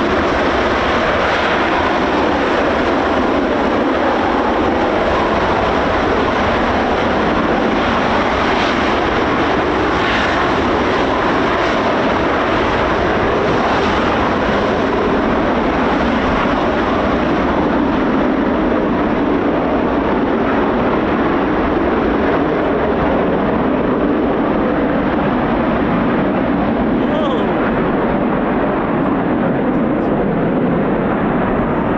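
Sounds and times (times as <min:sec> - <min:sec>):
jet noise: 0:00.0 - 0:31.9
wind buffeting microphone: 0:00.0 - 0:31.9.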